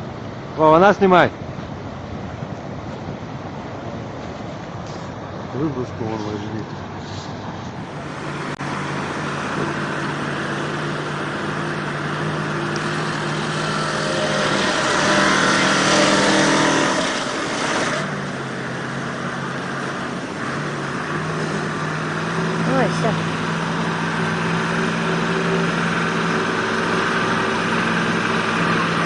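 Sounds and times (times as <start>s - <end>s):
engine running and revving: 7.8s - 29.0s.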